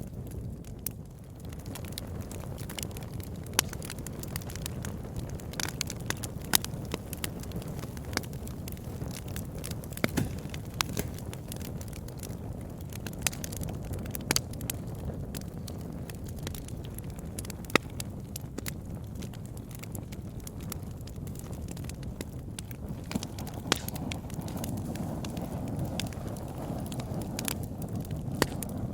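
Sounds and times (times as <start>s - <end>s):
burning wood crackling and popping: 0.0s - 28.9s
campfire flame rushing: 0.0s - 28.9s.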